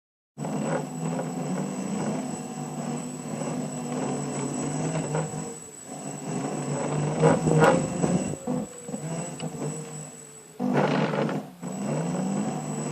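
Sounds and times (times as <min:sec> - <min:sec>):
thin high whine: 0:00.4 - 0:12.9
vehicle engine droning hum: 0:00.8 - 0:12.9.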